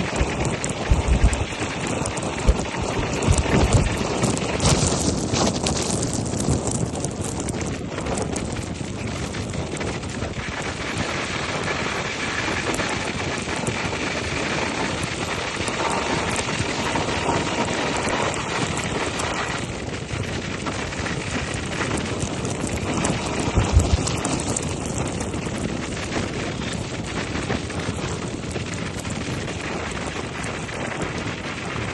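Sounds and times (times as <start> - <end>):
wind rushing over microphone: 0.0 - 31.9.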